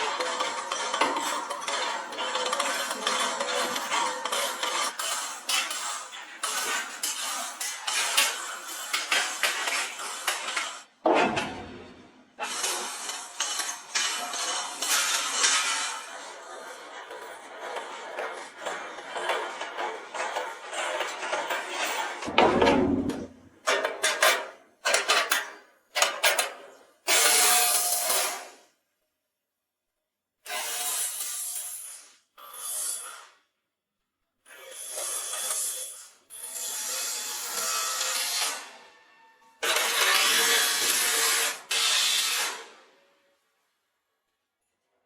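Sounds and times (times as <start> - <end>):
short clatters and scrapes: 14.7 - 27.4
heavy thump: 22.3 - 23.5.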